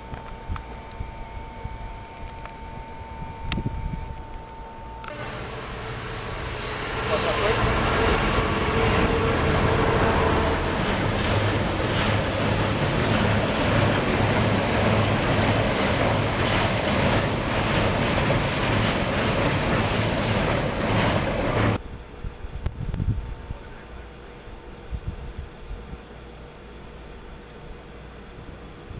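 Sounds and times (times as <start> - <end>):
train passing: 5.0 - 21.8.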